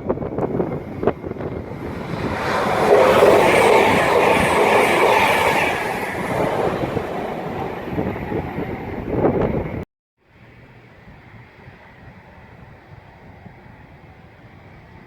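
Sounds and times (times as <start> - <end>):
train passing: 0.0 - 9.8.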